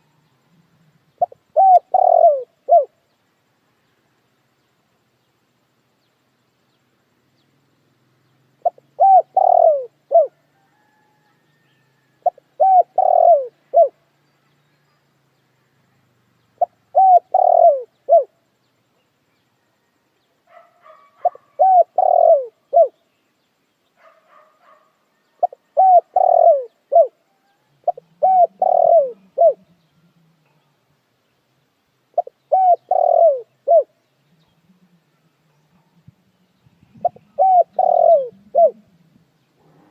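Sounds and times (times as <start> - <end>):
dove cooing: 0.0 - 3.0, 8.6 - 11.2, 11.9 - 14.0, 16.6 - 18.4, 20.5 - 23.0, 24.0 - 30.7, 32.1 - 36.2, 36.8 - 39.9
faint high bird chirps: 8.2 - 31.5, 32.1 - 39.9.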